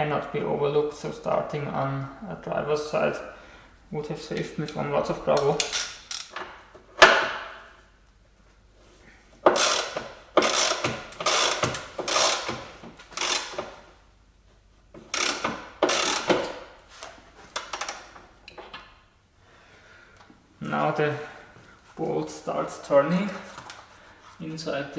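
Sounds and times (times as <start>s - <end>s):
socket ratchet clicking: 5.6s - 6.5s, 9.4s - 13.7s, 15.0s - 16.6s, 17.6s - 18.6s.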